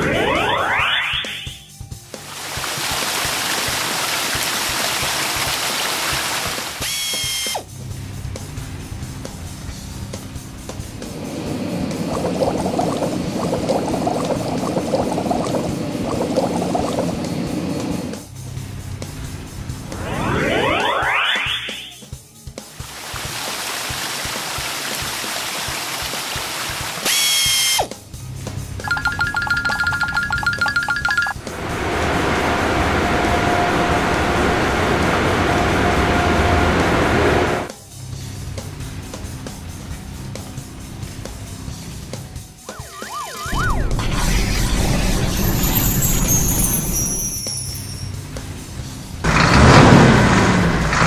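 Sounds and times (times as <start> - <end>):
children's background music: 28.8 - 31.4
bright ringing tone: 28.8 - 31.5, 42.7 - 48.3
short bright ringing chime: 45.3 - 48.2.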